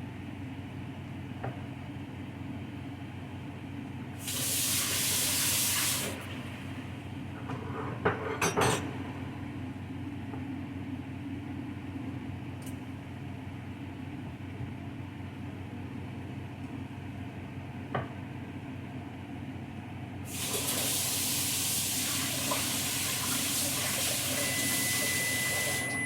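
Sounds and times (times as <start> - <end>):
loud hiss: 4.2 - 6.3.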